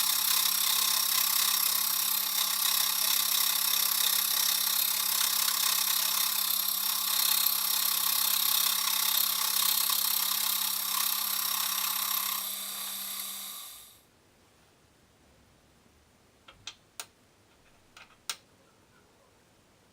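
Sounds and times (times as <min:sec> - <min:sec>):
machine tool motor hum: 0:00.0 - 0:14.0
hissing cutting noise: 0:11.8 - 0:14.0.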